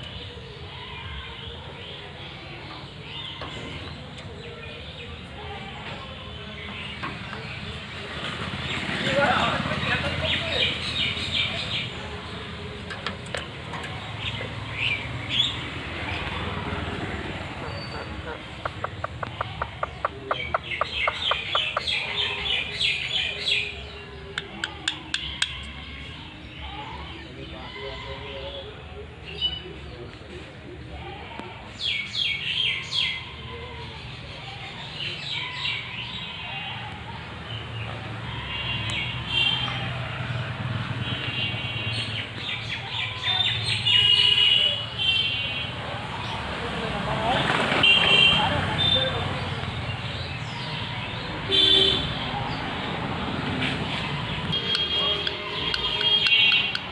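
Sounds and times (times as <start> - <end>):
parrots chirping: 17.0 - 23.4, 54.6 - 56.9.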